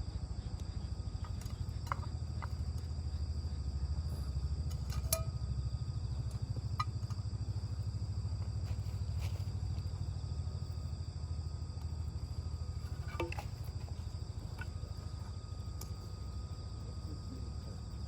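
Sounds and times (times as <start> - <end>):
high insect trill: 0.0 - 18.0.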